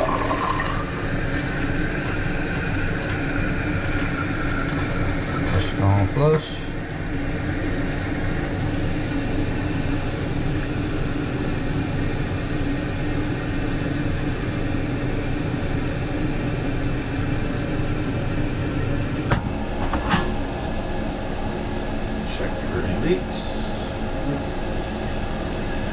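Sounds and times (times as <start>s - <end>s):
toilet flushing: 0.0s - 8.4s
toilet tank refilling: 0.0s - 9.0s.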